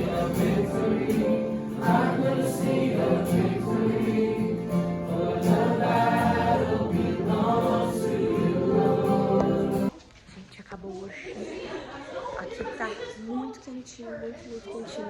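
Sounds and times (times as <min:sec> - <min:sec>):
group singing a worship song: 0:00.0 - 0:09.9
instrumental backing: 0:00.0 - 0:09.9.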